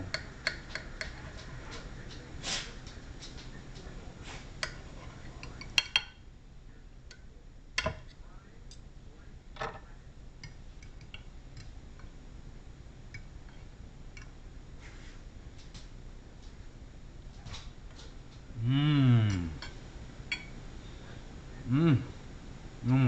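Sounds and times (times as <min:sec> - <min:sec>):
cutlery clinking on a plate: 0:04.6 - 0:06.2.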